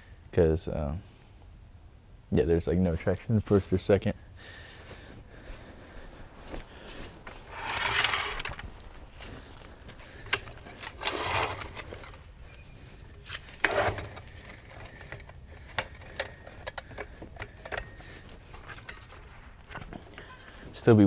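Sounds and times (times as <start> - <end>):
hand tools and metal parts clinking: 6.5 - 21.0
loud scraping: 7.3 - 9.4, 10.0 - 20.5.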